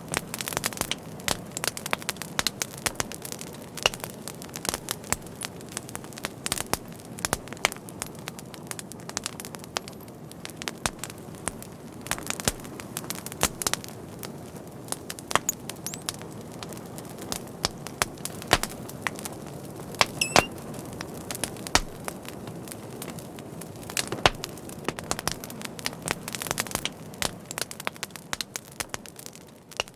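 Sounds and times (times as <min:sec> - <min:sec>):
fire crackling: 0:00.0 - 0:29.9
thin high whistle: 0:20.2 - 0:20.5.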